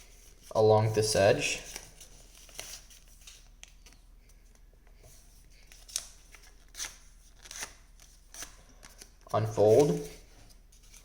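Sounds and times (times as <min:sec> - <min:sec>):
paper rustling and crackling: 0:01.5 - 0:04.0, 0:05.6 - 0:11.0.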